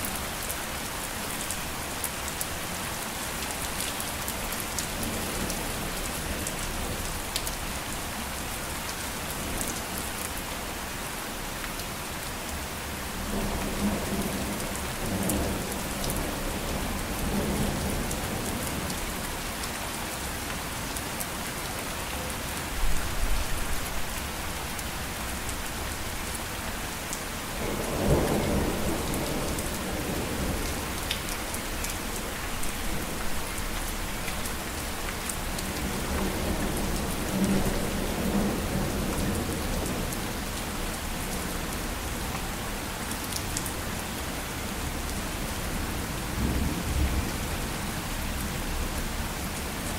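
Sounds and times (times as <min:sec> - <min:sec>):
heavy rain falling: 0:00.0 - 0:49.9
low rolls of thunder: 0:27.6 - 0:30.7.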